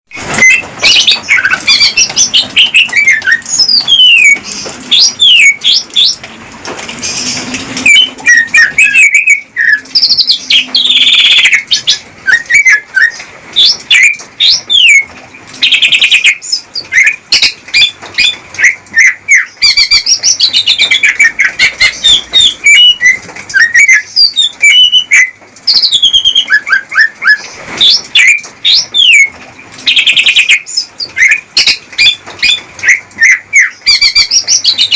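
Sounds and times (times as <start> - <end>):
bird rattling trills: 0.2 - 34.9
bird singing whistled chirps: 0.4 - 6.2, 7.9 - 15.0, 21.9 - 29.3.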